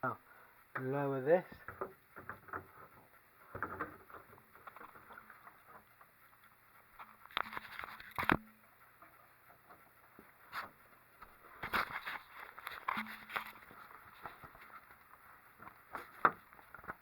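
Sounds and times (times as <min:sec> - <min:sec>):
plastic parts clicking and rustling: 0:07.0 - 0:08.4, 0:11.6 - 0:14.9.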